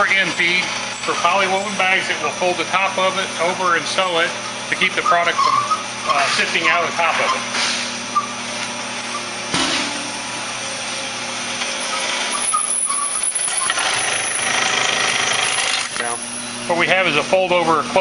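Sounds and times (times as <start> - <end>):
sharp knock: 9.5 - 10.1
sewing machine whirring: 11.8 - 16.1.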